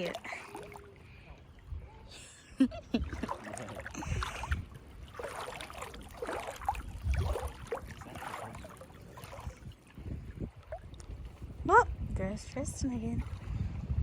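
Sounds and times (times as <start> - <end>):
seawater sloshing around wading: 0.0 - 14.0.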